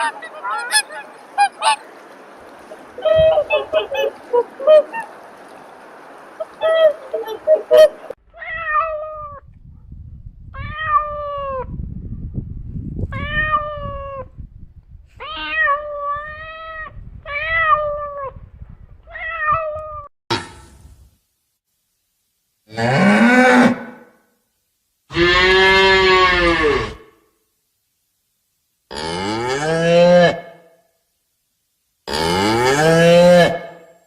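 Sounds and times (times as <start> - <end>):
cat meowing: 15.2 - 18.3, 19.1 - 20.1.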